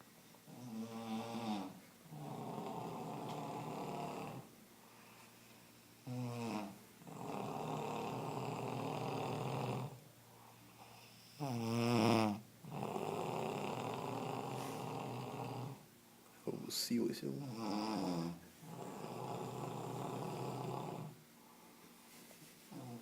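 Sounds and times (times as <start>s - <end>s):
dog snoring: 0.5s - 4.5s, 6.0s - 15.9s, 17.4s - 21.2s, 22.7s - 23.0s.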